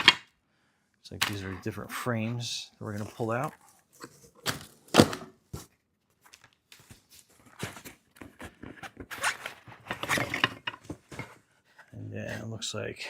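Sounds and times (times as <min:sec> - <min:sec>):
wooden frames scraping: 0:07.6 - 0:11.9.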